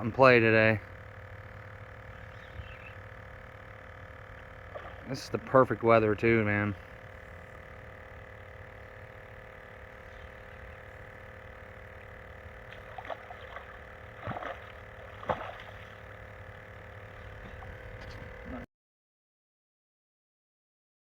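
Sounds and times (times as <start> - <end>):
boat motor running: 0.0 - 18.7.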